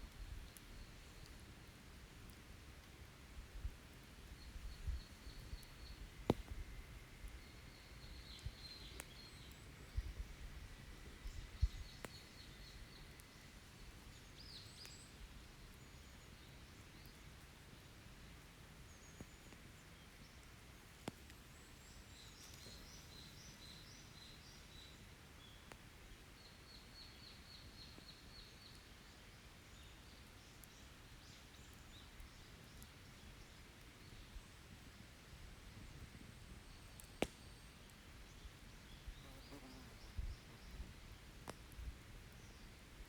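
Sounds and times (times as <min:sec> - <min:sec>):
small birds singing: 0:04.2 - 0:17.4, 0:18.7 - 0:43.0
campfire pops: 0:05.3 - 0:07.3, 0:36.9 - 0:37.6, 0:41.3 - 0:41.8.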